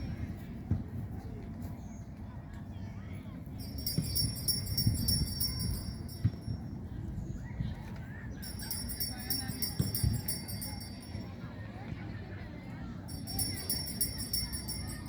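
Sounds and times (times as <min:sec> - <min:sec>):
metallic jingling: 0:03.6 - 0:06.6, 0:08.4 - 0:11.2, 0:13.1 - 0:15.0.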